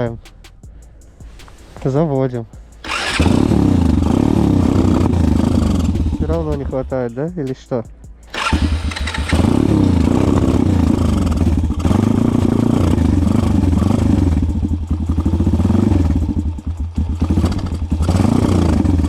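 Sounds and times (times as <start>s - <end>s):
small engine running unevenly: 2.8s - 6.7s, 8.3s - 19.0s.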